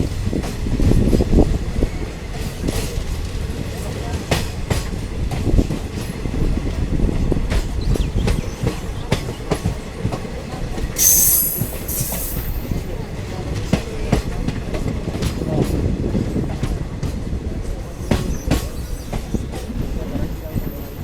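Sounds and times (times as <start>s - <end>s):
high-pitched wheel squeal: 11.0s - 12.8s
train rumbling: 11.0s - 12.8s.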